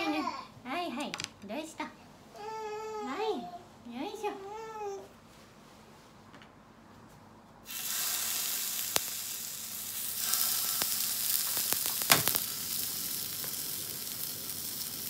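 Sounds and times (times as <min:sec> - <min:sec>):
dumplings sizzling in frying pan: 0:07.7 - 0:15.0.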